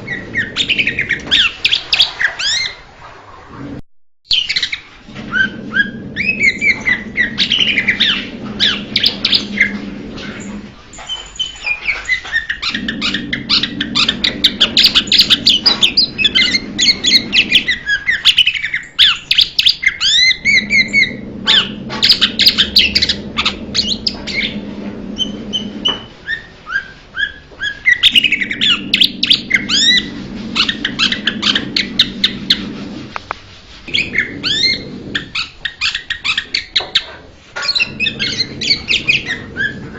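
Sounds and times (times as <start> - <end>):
low hum: 5.1 - 17.9, 20.2 - 26.2, 28.1 - 35.4
bird singing chirps and whistles: 11.0 - 23.2, 25.2 - 32.4.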